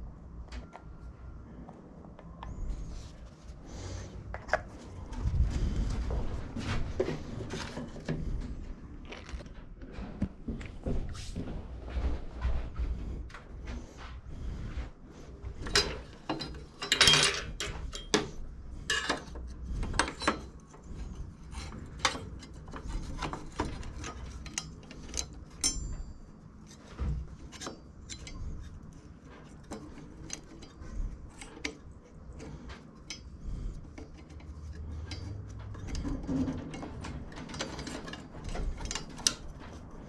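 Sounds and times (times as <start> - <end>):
tools clicking and knocking on metal: 15.5 - 20.9, 21.5 - 40.0.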